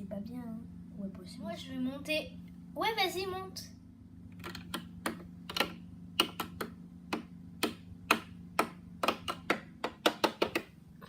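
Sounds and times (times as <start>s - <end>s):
low steady hum: 0.0s - 11.0s
plastic toy figure tapping: 4.4s - 10.7s.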